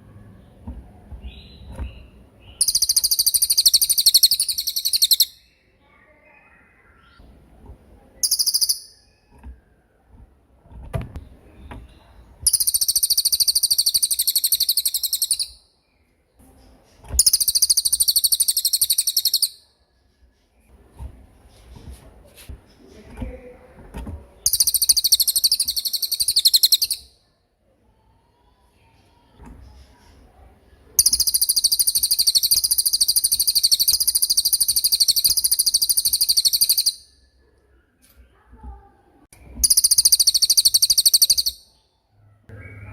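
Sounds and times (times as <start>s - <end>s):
songbird high-pitched trills: 2.5s - 5.6s, 8.2s - 9.2s, 12.5s - 15.7s, 17.2s - 19.6s, 24.4s - 27.2s, 31.0s - 37.2s, 39.6s - 41.8s.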